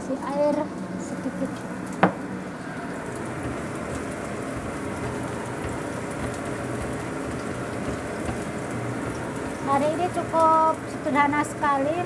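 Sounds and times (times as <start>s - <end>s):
garlic sizzling in hot oil: 2.8s - 12.0s
spatula stirring in wok: 3.1s - 11.1s.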